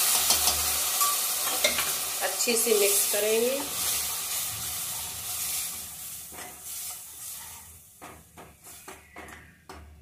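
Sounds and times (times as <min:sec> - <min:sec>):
masala sizzling in oil: 0:00.0 - 0:08.9.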